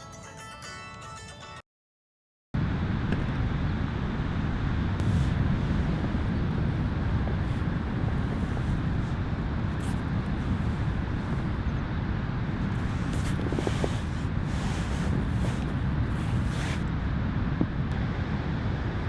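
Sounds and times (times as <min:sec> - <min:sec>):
wind: 0:02.6 - 0:19.0
sea: 0:04.7 - 0:17.7.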